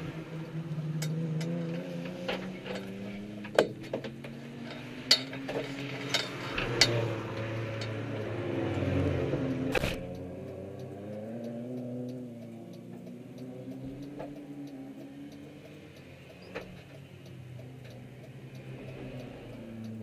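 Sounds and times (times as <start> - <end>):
light regular ticking: 0.0 - 20.0
sharp clicks: 9.5 - 20.0.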